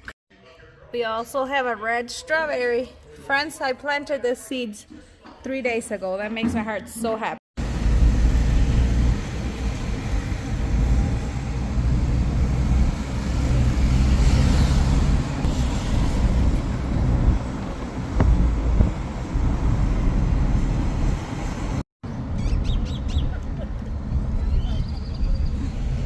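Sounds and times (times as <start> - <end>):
car engine and road noise: 7.6 - 26.0.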